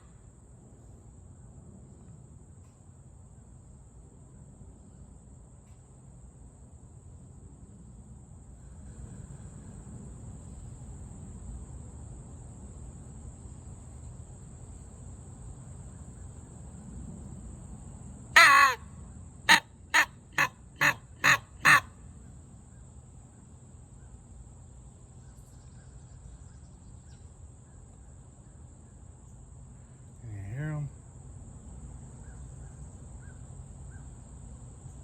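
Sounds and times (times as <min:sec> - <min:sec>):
crow call caws: 0:18.4 - 0:18.9, 0:19.5 - 0:21.9.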